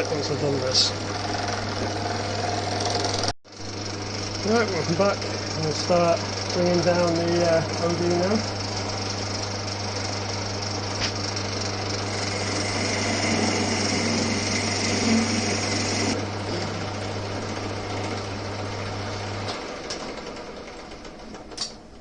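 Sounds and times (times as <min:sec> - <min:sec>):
lathe motor hum: 0:11.6 - 0:19.4
lathe tool cutting metal: 0:12.0 - 0:16.3.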